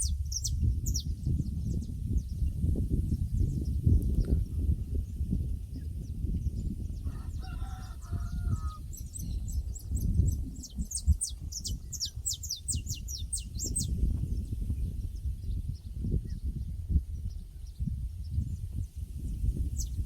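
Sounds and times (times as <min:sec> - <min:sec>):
small bird chirping: 0:00.0 - 0:02.6, 0:08.9 - 0:16.6
rooster crowing faintly: 0:07.0 - 0:08.8.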